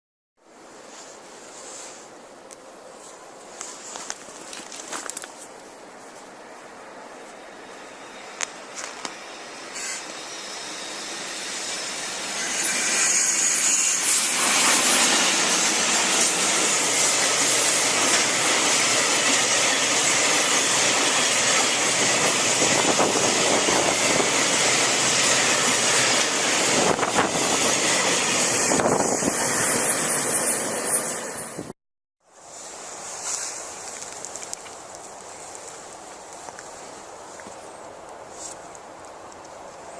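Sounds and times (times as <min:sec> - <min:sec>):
freight train passing: 0:06.7 - 0:31.7.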